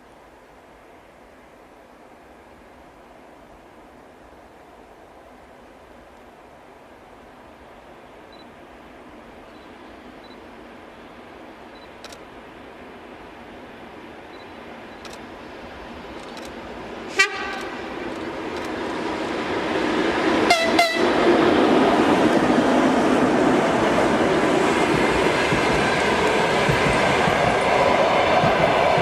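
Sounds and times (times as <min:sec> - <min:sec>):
electric locomotive rumble: 0:12.6 - 0:29.0
train horn toots: 0:17.1 - 0:17.9, 0:20.5 - 0:21.2.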